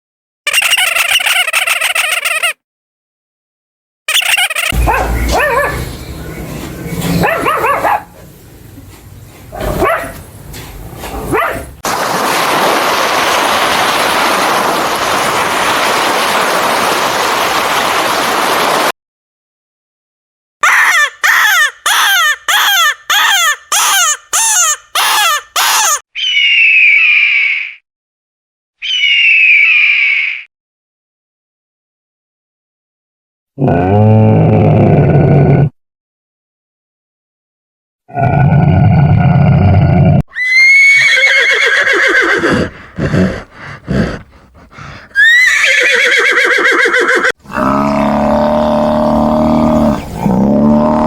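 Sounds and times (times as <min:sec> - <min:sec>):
animal calls: 0:04.1 - 0:08.2, 0:20.6 - 0:27.8, 0:28.8 - 0:30.4
short falling calls: 0:20.6 - 0:27.8.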